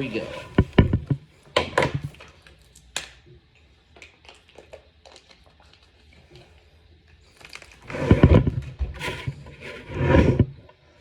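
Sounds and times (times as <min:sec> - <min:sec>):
rubbing and knocking: 0:00.2 - 0:01.2, 0:07.9 - 0:10.6.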